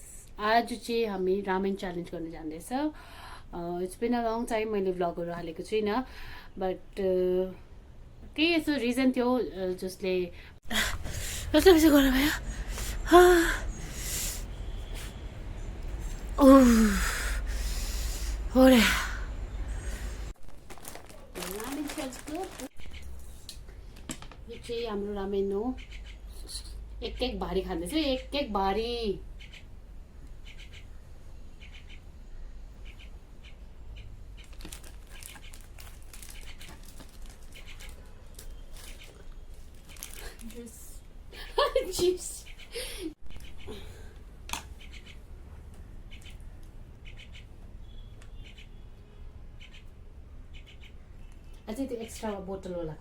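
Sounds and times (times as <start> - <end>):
person sighing or gasping: 12.4 - 14.4, 16.4 - 20.3
plastic packet crinkling: 20.4 - 22.8, 34.4 - 40.8.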